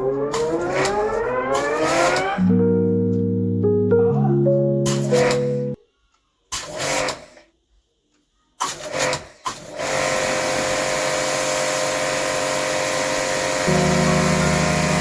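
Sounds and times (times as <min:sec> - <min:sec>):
pressure washer motor and spray: 0:08.6 - 0:15.0.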